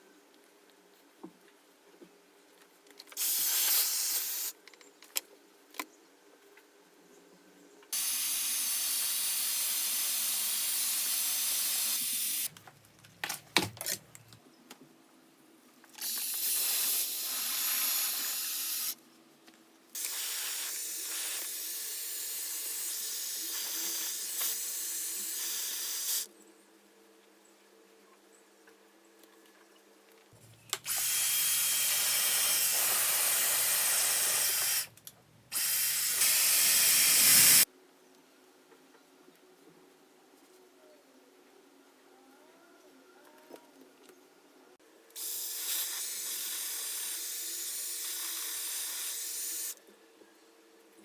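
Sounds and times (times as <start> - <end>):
hair styling brush blowing air: 30.8 - 34.9, 35.5 - 37.7.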